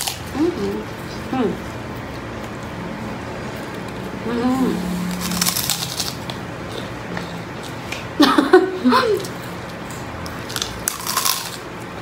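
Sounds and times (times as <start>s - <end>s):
crunchy bite and chewing: 5.0s - 8.0s, 9.7s - 11.7s.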